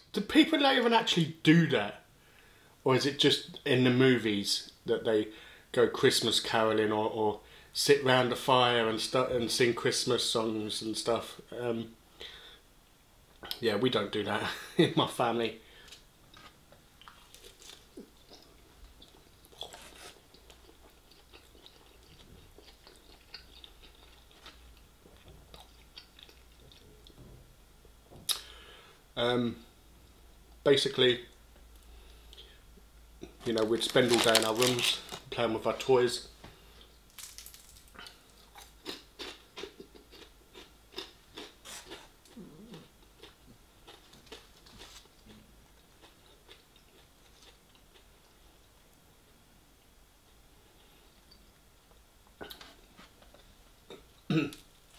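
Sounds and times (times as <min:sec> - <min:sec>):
faint close-up chewing: 0:15.8 - 0:27.2, 0:37.9 - 0:48.7.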